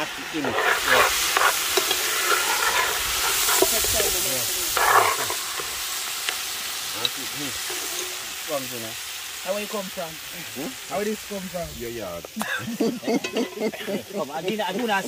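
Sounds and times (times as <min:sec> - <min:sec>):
utensil scraping a pot: 0:00.0 - 0:05.9, 0:07.0 - 0:08.3
food sizzling in a pot: 0:00.0 - 0:15.0.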